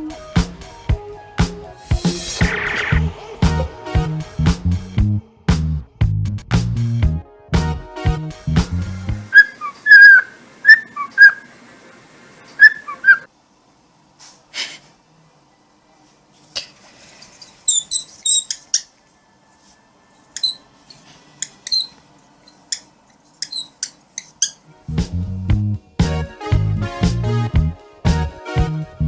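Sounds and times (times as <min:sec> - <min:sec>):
high bird chirps: 0:09.3 - 0:13.3
parrot whistling sliding notes: 0:09.3 - 0:13.3.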